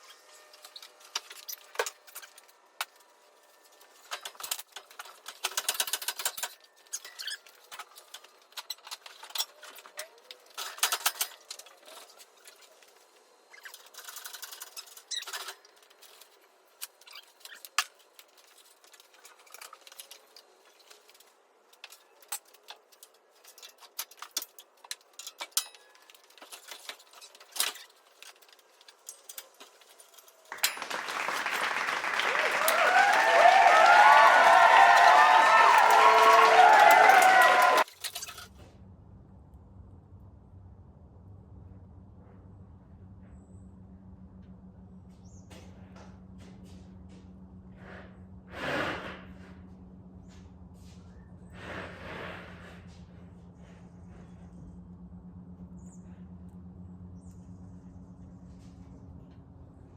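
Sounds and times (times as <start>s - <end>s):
metal tools clinking and rattling: 3.8s - 30.8s, 37.9s - 38.5s.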